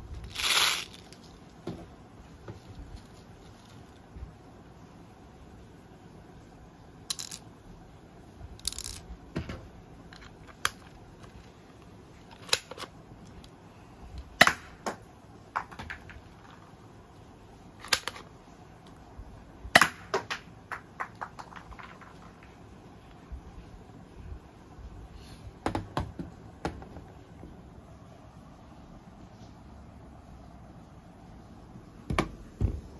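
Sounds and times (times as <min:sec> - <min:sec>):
toy gun plastic clicks: 0:07.1 - 0:07.4.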